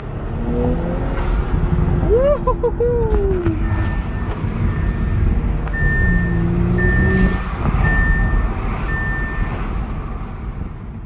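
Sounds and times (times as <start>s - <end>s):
car engine revving: 0.0s - 2.2s, 3.4s - 10.7s
high beep: 3.5s - 9.6s.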